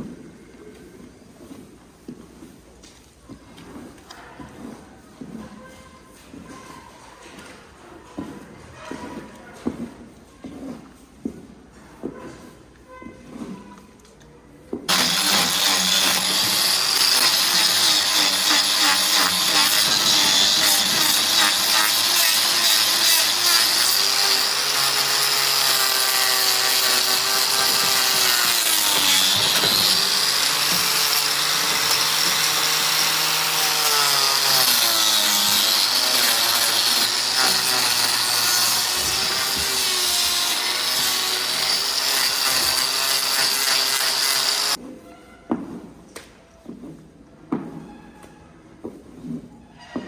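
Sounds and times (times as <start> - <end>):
power tool running: 14.9 - 44.8.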